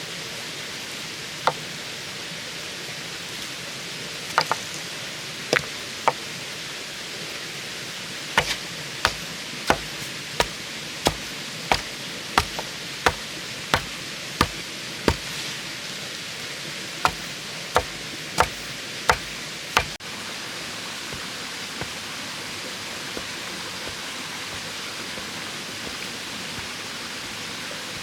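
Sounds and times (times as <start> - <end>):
tool strikes on bamboo: 8.4 - 15.4, 17.0 - 20.0, 21.1 - 22.1, 23.2 - 27.4.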